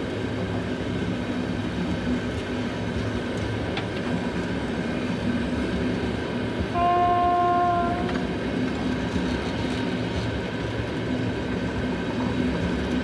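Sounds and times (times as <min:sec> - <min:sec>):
freight train rumbling past: 0:00.0 - 0:13.0
locomotive horn blast: 0:06.7 - 0:08.3.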